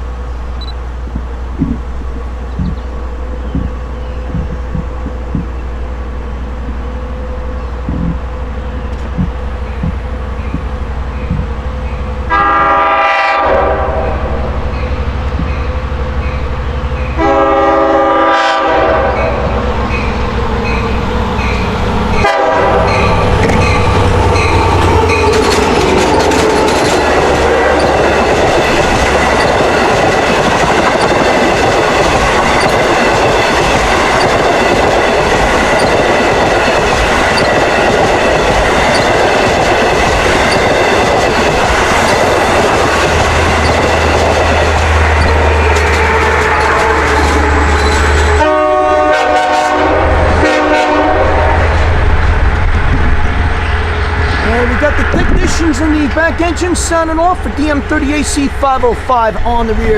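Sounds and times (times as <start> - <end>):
train wheel and rail noise: 0.0 - 59.9
locomotive horn blasts: 12.0 - 16.0, 17.1 - 19.8, 22.1 - 25.3, 30.7 - 52.5
crossing bell ringing: 14.0 - 17.6, 18.4 - 49.0.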